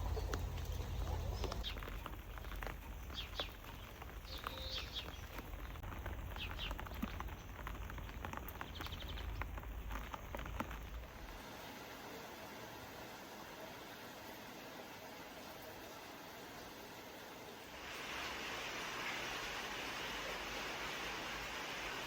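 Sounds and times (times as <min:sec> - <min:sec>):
steady low rumble: 0:00.0 - 0:01.6
small birds chirping: 0:00.0 - 0:11.2.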